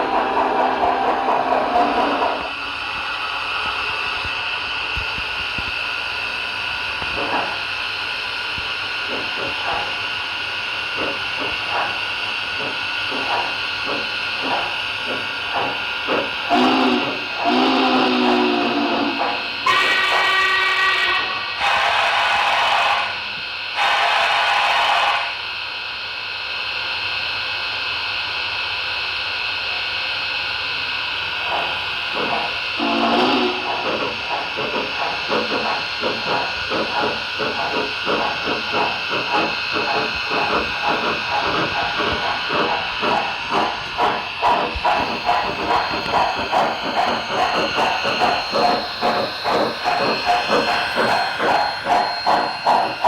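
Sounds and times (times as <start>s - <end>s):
model locomotive steam hiss: 5.2s - 25.4s, 31.0s - 53.0s
model train whistle blast: 16.5s - 25.4s, 32.8s - 33.9s
short steam bursts: 31.5s - 37.9s.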